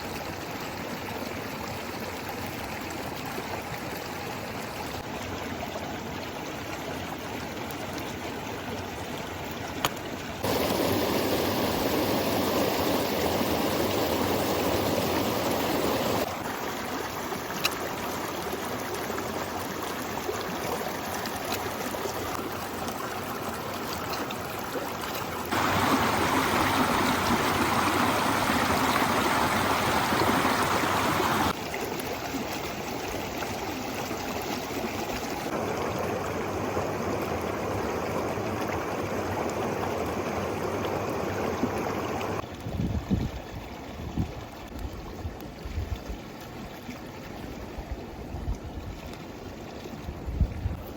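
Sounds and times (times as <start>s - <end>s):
river water rushing: 10.4s - 31.7s, 35.1s - 42.4s.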